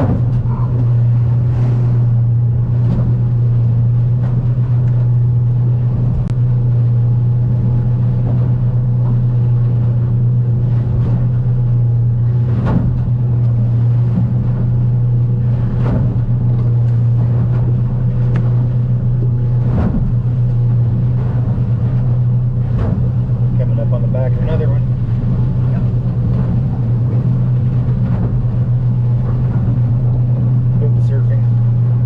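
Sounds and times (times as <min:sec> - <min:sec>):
hull slamming into swells: 0:00.0 - 0:02.1
outboard engine droning: 0:00.0 - 0:32.0.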